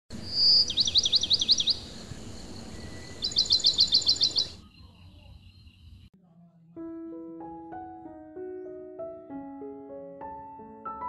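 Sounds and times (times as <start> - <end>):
songbird singing: 0.1 - 6.1
steady outdoor hiss: 0.1 - 6.1.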